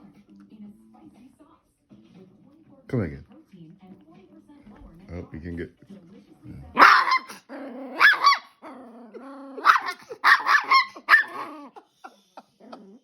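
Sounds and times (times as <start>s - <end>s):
dog barking and growling: 6.5s - 13.0s.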